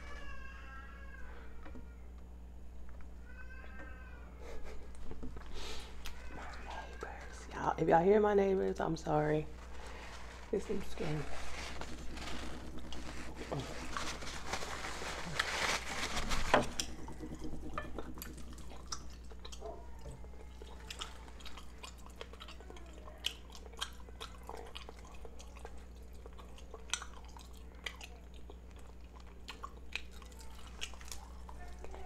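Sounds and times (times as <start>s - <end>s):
chewing with wet smacks: 18.0s - 32.0s.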